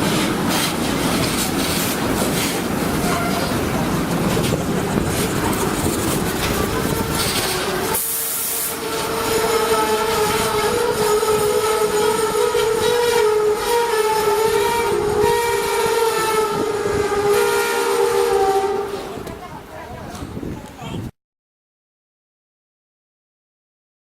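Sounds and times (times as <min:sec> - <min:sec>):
train hiss: 0:00.0 - 0:14.2
steady pitched train tone: 0:00.0 - 0:19.7.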